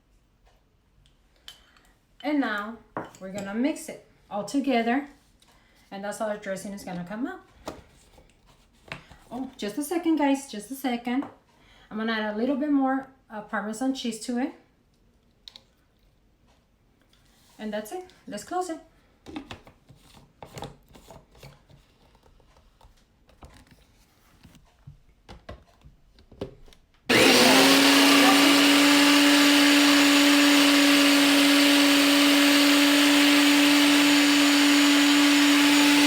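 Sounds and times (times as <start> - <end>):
electric blender whirring: 27.1 - 36.0.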